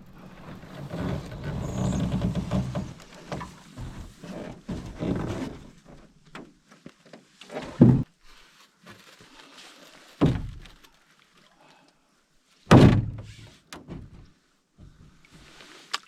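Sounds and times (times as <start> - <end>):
heavy thunks of camping gear: 7.5 - 8.2, 10.2 - 10.9, 12.7 - 15.2.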